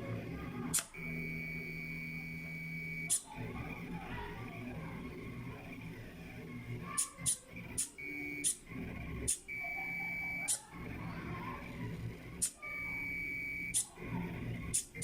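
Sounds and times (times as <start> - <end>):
stepper motors whining: 0.0 - 15.0
sharp machine clicks: 0.7 - 1.1, 3.0 - 3.3, 6.9 - 9.5, 10.1 - 10.9, 12.1 - 15.0.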